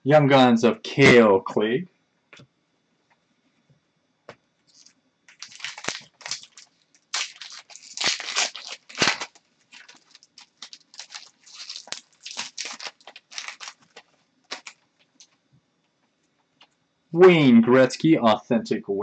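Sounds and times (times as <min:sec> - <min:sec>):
foil wrappers crinkling and tearing: 0:04.7 - 0:15.4.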